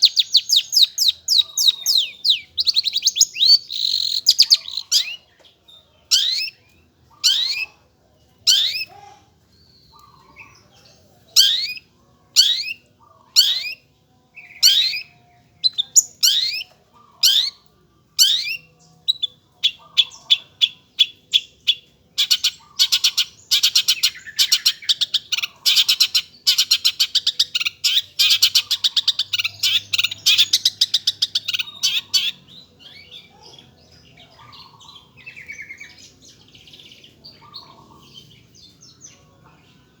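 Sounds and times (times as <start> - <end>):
shrike singing: 0.0 - 5.2, 12.4 - 40.0.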